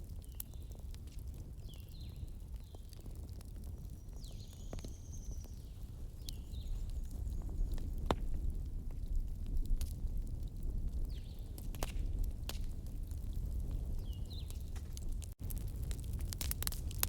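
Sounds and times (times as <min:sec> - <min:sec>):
campfire crackling and popping: 0:00.0 - 0:17.0
bird chirping: 0:04.0 - 0:07.4.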